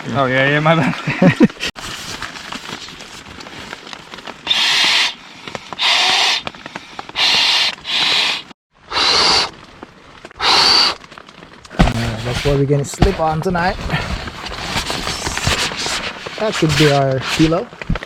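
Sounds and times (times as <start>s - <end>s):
breath puffs into inflatable pad: 4.5s - 9.5s, 10.4s - 11.0s.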